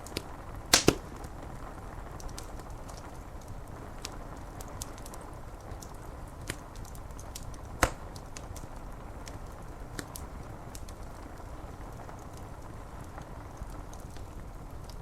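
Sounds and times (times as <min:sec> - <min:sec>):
wood fire crackling and popping: 0:00.7 - 0:01.1.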